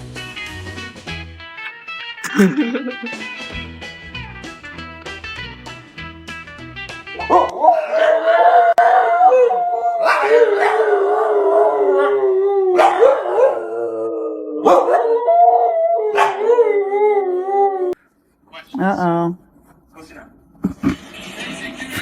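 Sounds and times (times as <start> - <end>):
dogs barking: 7.1 - 13.8, 14.6 - 15.2, 16.1 - 16.7
dogs howling: 7.2 - 18.0.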